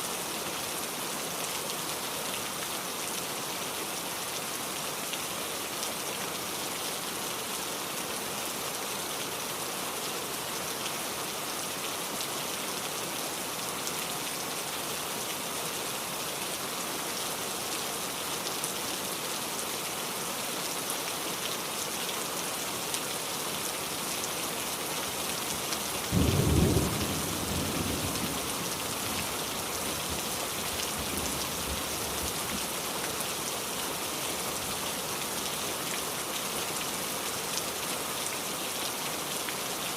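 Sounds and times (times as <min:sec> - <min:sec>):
heavy rain: 0:00.0 - 0:39.9
thunder rumbling: 0:26.2 - 0:29.0.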